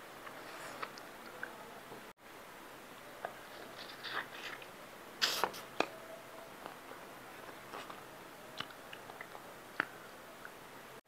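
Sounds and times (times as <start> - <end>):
mouth clicks and smacks: 8.6 - 10.6.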